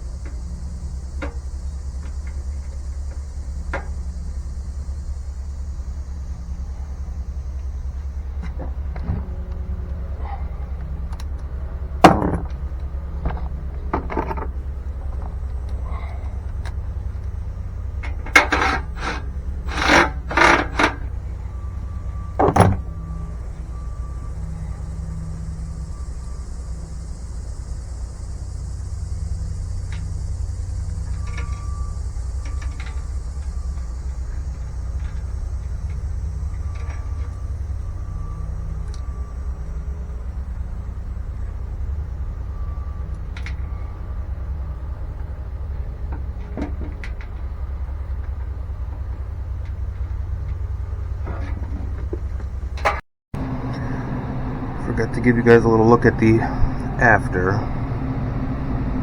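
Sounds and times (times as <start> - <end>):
low machine hum: 0.0 - 59.0
metal tools clanking: 8.3 - 23.6, 51.2 - 57.8.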